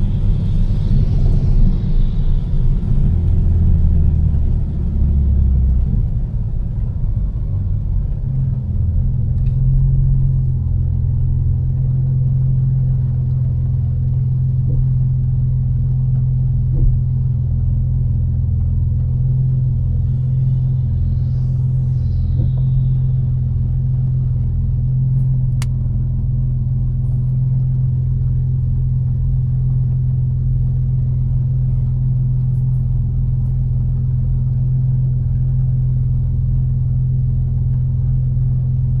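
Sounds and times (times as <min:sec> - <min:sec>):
car engine and tyre drone: 0:00.0 - 0:39.0
faint high whistle: 0:20.2 - 0:24.5.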